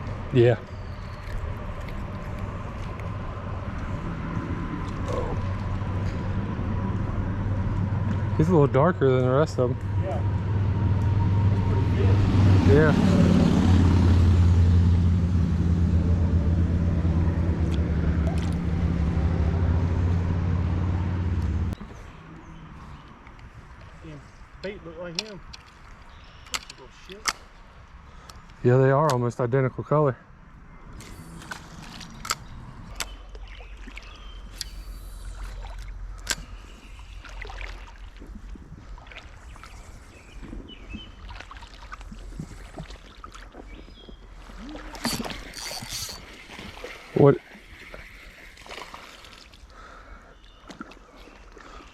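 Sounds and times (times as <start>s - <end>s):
low steady rumble: 0.0s - 21.8s
low engine-like hum: 0.0s - 23.8s, 30.5s - 51.9s
creek water sloshing and splashing: 16.6s - 20.2s, 30.9s - 51.9s.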